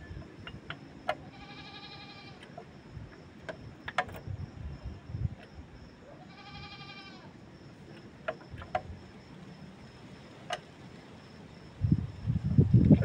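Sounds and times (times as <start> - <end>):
animal bleating: 1.3 - 2.4, 6.2 - 7.3.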